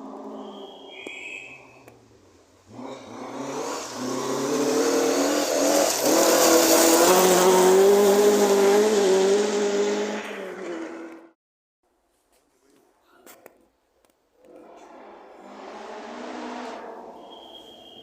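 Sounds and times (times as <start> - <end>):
rally car engine at high revs: 2.6 - 11.4, 14.5 - 17.7
tyres hissing on gravel: 3.4 - 8.5.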